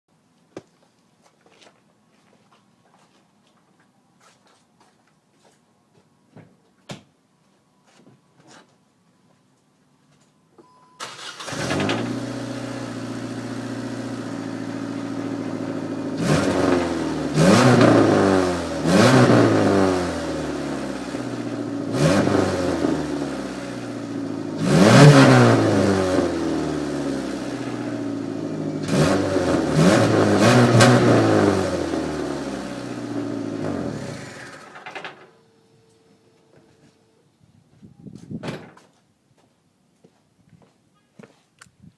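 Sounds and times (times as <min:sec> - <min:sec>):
car engine starting and revving: 0:11.0 - 0:34.7.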